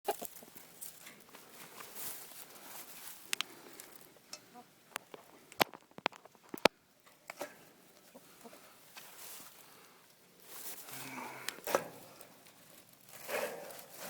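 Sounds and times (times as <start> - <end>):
hens clucking softly: 0.1 - 0.6, 7.4 - 8.8
sharp clicks and knocks: 4.3 - 7.4.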